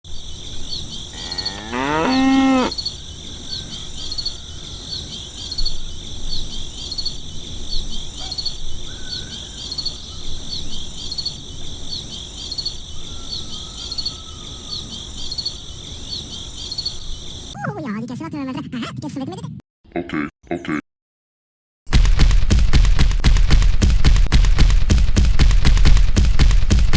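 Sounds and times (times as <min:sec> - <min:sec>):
crickets chirping: 0:00.1 - 0:17.6
cow mooing: 0:01.2 - 0:02.8.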